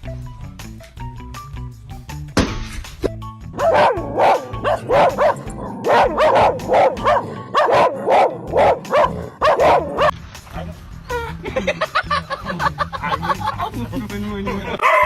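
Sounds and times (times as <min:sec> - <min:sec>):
background music: 0:00.0 - 0:15.0
dog barking: 0:03.6 - 0:10.7, 0:14.8 - 0:15.0.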